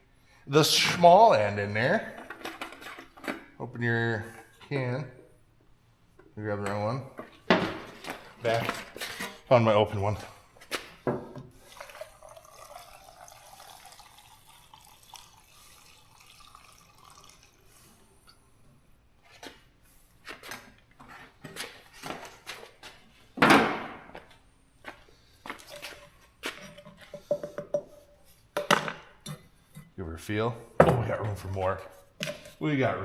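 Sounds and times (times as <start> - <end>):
faint liquid gurgle: 11.6 - 18.2.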